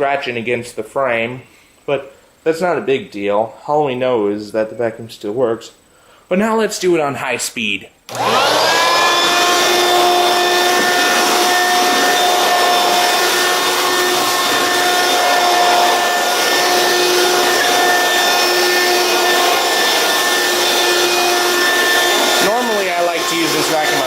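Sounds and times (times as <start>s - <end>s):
stick vacuum whining: 8.1s - 24.0s.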